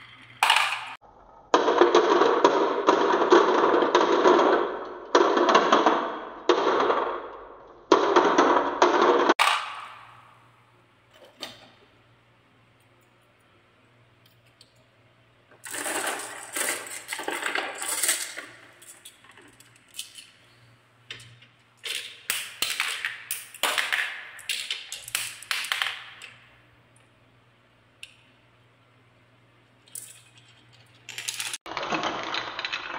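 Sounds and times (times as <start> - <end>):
marbles rolling down wooden run: 15.6 - 18.7, 30.0 - 32.9.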